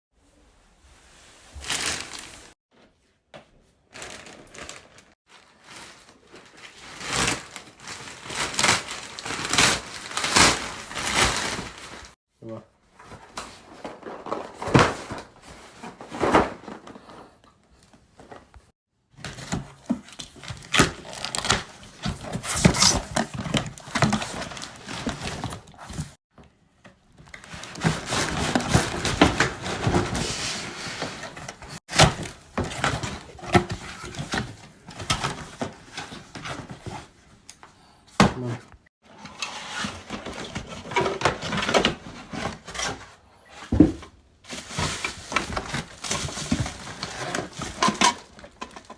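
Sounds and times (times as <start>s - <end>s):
packaging rustling and knocking: 3.9s - 12.2s, 13.1s - 17.4s, 19.1s - 26.2s, 27.1s - 37.1s, 43.7s - 48.9s.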